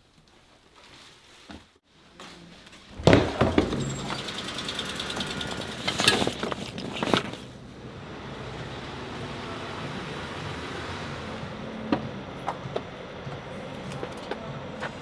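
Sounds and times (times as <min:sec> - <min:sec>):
engine and road noise: 0:02.7 - 0:15.0
sharp knocks and clatters: 0:02.9 - 0:07.5.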